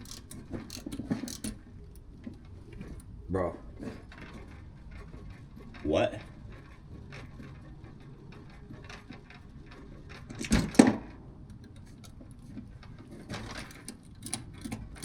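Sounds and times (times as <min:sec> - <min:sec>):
clicks and handling noises: 0:10.1 - 0:15.0.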